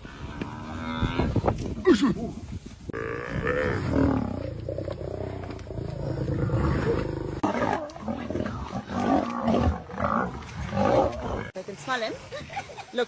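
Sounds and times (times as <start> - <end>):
lion roaring: 3.0 - 11.5.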